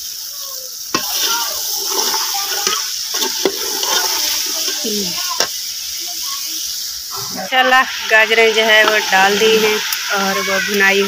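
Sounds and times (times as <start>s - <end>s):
carrots sizzling in a pot: 0.0s - 11.0s
metal ladle scraping a pot: 1.0s - 4.8s, 8.6s - 9.8s.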